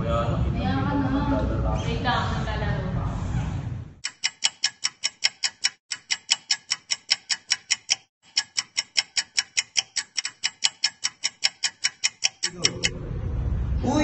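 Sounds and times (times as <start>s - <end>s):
rapid sharp ticking: 4.0s - 12.9s.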